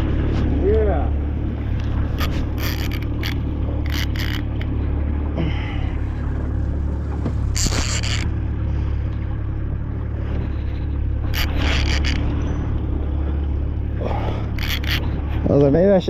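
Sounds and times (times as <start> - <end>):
outboard motor droning: 0.0 - 16.0
short scraping noises: 1.8 - 4.6, 7.2 - 8.3, 10.3 - 12.3, 14.5 - 15.5.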